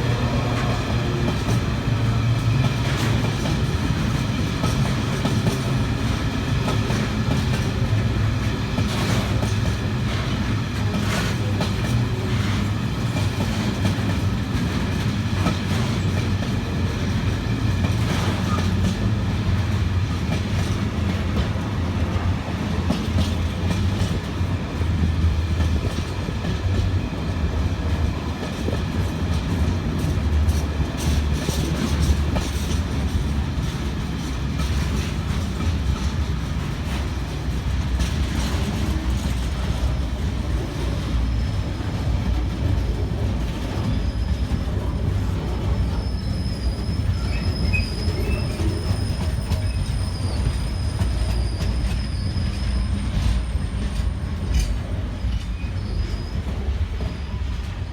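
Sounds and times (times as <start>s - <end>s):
train wheels rumbling on rails: 0.0s - 57.9s
high wheel squeal: 43.8s - 45.0s, 45.6s - 57.6s.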